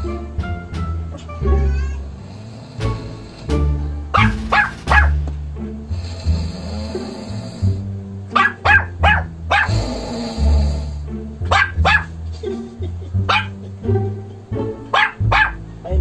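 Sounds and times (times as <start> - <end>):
background music with bass line: 0.0 - 16.0
small dog barking: 4.1 - 5.2, 8.4 - 9.8, 11.5 - 12.1, 13.3 - 13.6, 14.9 - 15.6.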